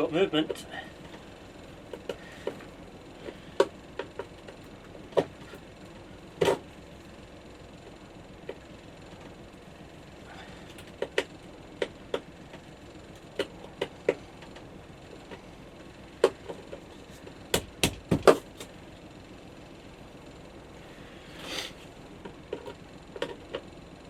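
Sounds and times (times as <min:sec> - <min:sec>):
hand tools knocking and clicking: 0:17.5 - 0:18.4.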